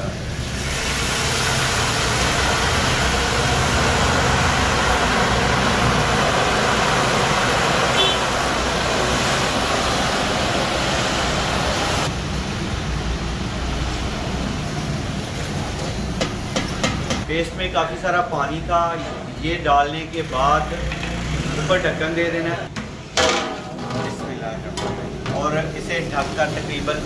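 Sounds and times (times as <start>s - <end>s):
paste sizzling in hot oil: 0.3s - 11.6s.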